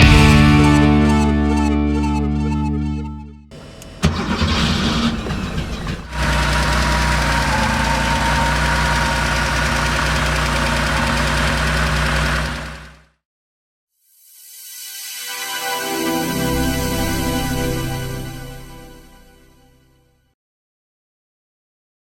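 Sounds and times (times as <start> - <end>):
background music: 0.0 - 3.5, 14.4 - 20.0
car engine starting and running: 0.0 - 13.1.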